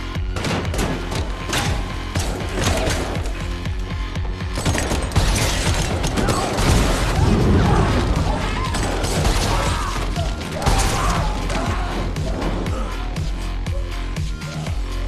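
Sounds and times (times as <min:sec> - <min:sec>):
gunshots: 0:00.3 - 0:03.4, 0:04.5 - 0:11.9
electronic soundtrack music: 0:05.9 - 0:15.0.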